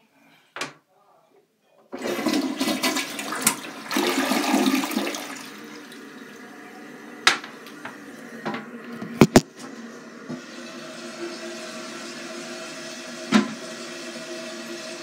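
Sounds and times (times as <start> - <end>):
toilet flushing: 1.9 - 15.0.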